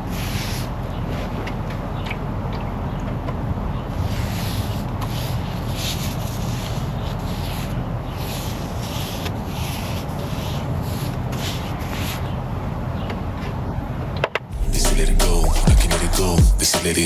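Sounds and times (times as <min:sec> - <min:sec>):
brush scrubbing boat hull: 0:04.0 - 0:12.4
low rumble: 0:14.5 - 0:16.6.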